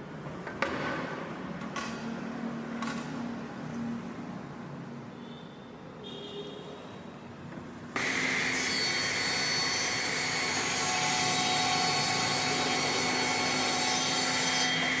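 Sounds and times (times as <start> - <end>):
woodworking machine hissing and whining: 8.0 - 15.0.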